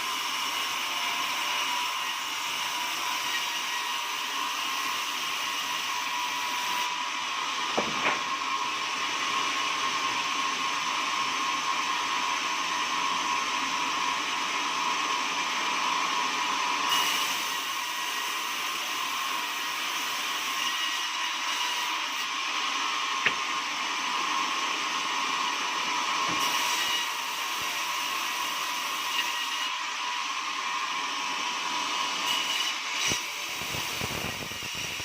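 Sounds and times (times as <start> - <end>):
sawmill whirring: 0.0 - 35.0
short knock: 7.8 - 8.3.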